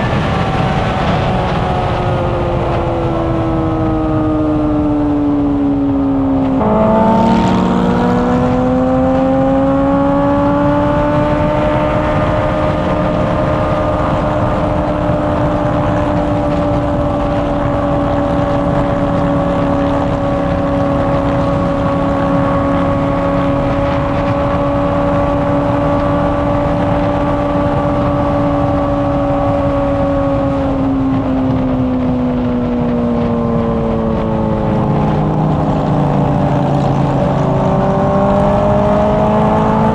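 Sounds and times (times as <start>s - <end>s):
motorcycle engine and exhaust: 0.0s - 39.9s
wind rush: 0.0s - 39.9s.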